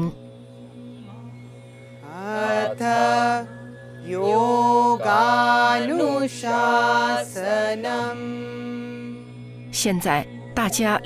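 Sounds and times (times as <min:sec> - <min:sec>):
steady low drone: 0:00.0 - 0:11.0
person chanting: 0:01.0 - 0:09.2.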